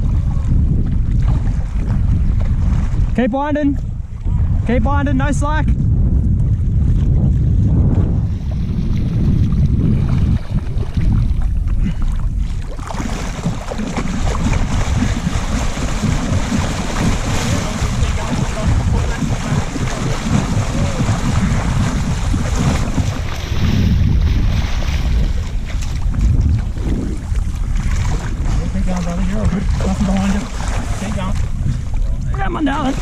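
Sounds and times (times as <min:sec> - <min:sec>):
wind buffeting the microphone: 0:00.0 - 0:33.0
rushing water splash: 0:08.0 - 0:33.0.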